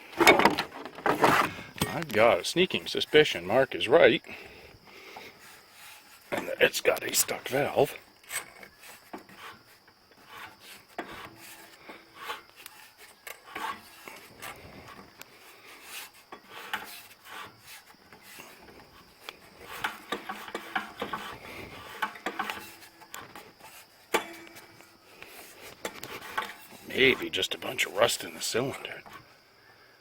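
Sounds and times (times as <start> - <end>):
strap wrench scraping and clicking: 8.2 - 27.2.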